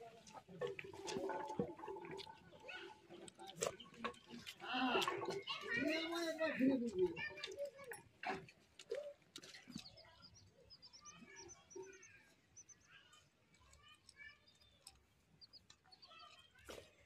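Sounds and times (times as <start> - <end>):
birds chirping: 8.9 - 16.6.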